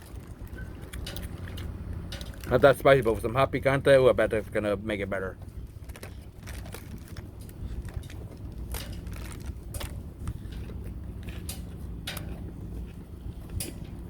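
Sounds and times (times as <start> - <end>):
steady low hum: 0.0 - 14.0
food packaging crinkling: 5.7 - 10.0.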